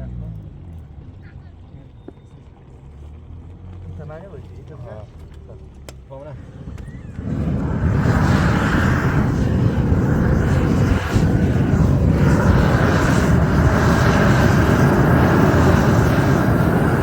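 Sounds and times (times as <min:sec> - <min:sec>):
loud steady rushing noise: 0:06.4 - 0:17.0.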